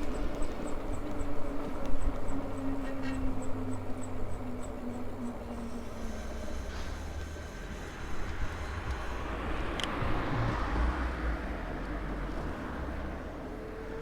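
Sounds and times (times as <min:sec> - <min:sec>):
bike rolling noise: 0:00.0 - 0:14.0
wind rumble on microphone: 0:00.0 - 0:14.0.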